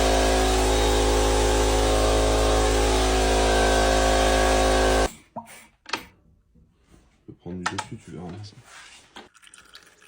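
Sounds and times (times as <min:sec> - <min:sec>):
machine motor running: 0:00.0 - 0:05.1.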